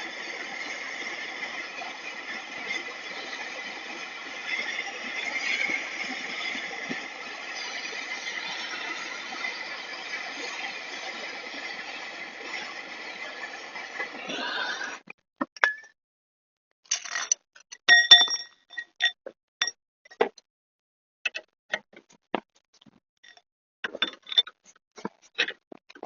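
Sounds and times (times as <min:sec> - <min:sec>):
steady noise: 0:00.0 - 0:15.0
metal tools clinking: 0:16.9 - 0:19.2.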